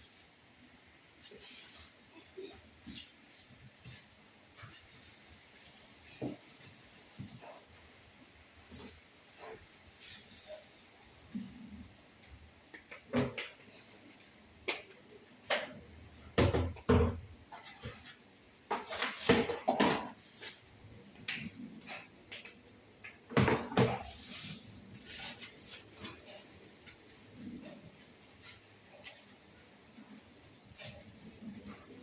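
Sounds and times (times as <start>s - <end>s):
objects knocking and clattering: 12.6s - 14.0s, 14.7s - 20.6s, 21.2s - 29.6s.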